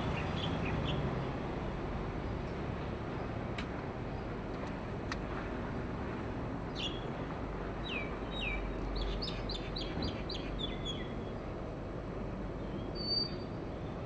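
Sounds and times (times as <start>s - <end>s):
bird chirping: 12.6s - 13.5s.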